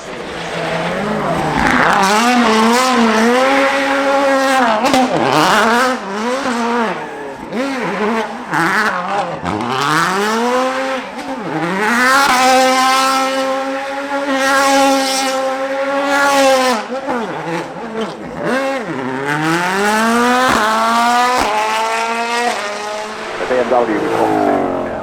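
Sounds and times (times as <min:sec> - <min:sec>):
car engine revving hard: 0:00.0 - 0:25.0.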